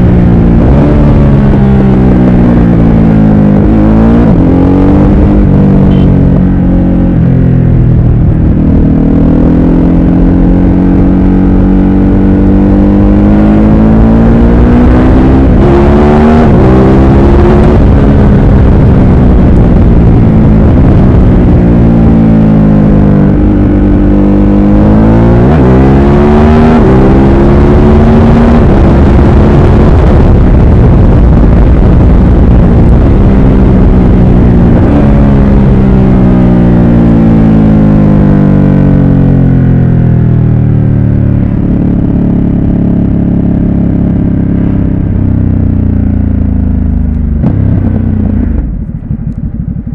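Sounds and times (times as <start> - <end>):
motorcycle engine revving under load: 0.0 - 49.9
wind rush on microphone: 14.0 - 37.4.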